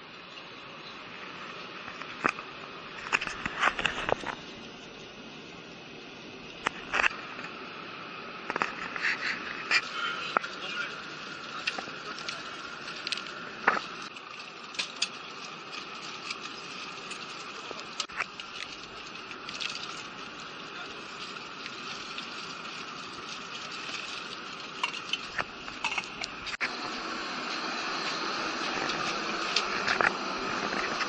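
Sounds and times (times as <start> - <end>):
airliner cabin noise: 0.2 - 31.0
sharp clicks and clatters: 11.4 - 26.8.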